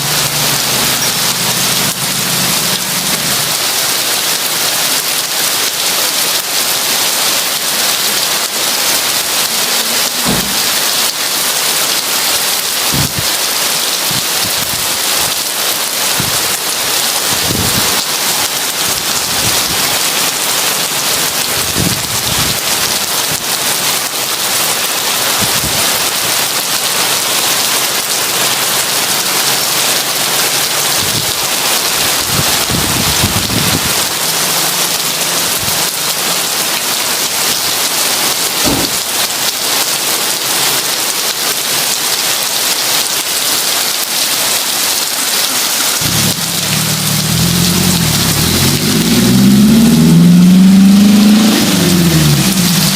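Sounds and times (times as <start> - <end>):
heavy rain: 0.0 - 52.9
steady low rumble: 46.0 - 48.4.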